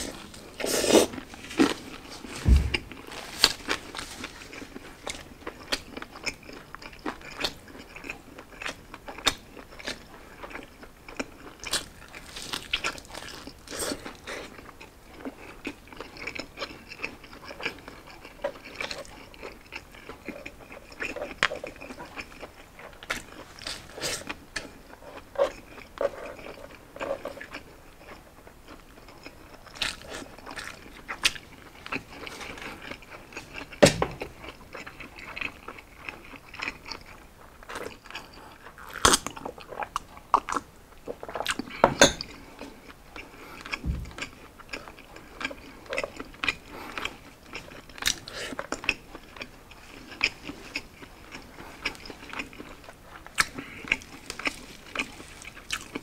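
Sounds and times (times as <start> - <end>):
chewing: 0.0 - 56.0
loud thump: 2.4 - 3.0, 43.8 - 44.2
crisp crunches of pork skin: 11.5 - 14.3, 51.8 - 56.0.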